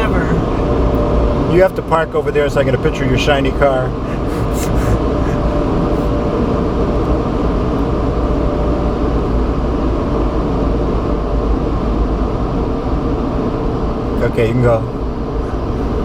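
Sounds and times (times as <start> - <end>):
car wash machinery rumble: 0.0 - 16.0
rushing dryer air: 0.0 - 16.0.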